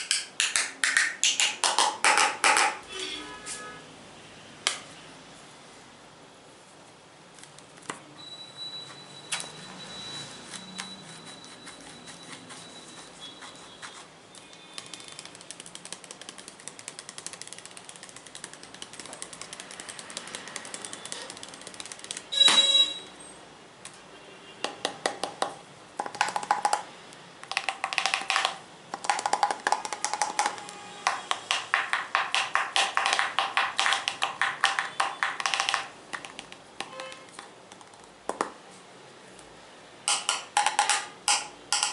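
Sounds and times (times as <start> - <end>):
fingers tapping on objects: 0.0 - 2.8, 14.4 - 22.8, 24.6 - 38.6, 40.1 - 41.9
loud ringing ping: 22.4 - 23.1.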